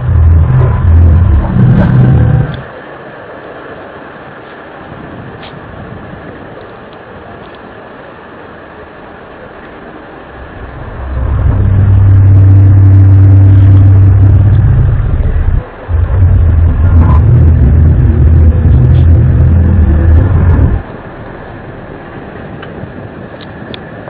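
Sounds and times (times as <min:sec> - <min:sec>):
low droning trumpet-like sound: 0:00.0 - 0:02.7, 0:10.4 - 0:22.2.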